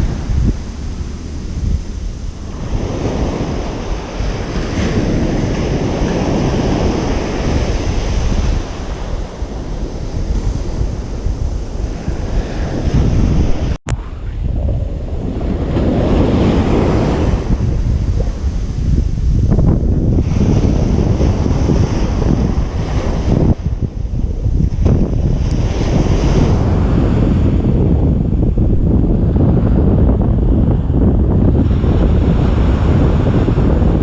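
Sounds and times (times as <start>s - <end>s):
waves breaking on beach: 0.0s - 14.2s, 15.0s - 27.6s
wind rumbling on microphone: 0.0s - 34.0s.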